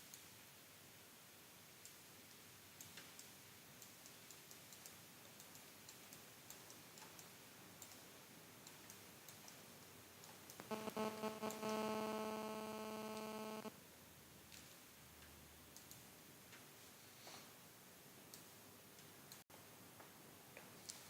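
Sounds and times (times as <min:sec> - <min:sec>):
quiet hiss: 0:00.0 - 0:21.0
computer mouse clicks: 0:01.8 - 0:09.6, 0:10.2 - 0:13.7, 0:14.5 - 0:16.6.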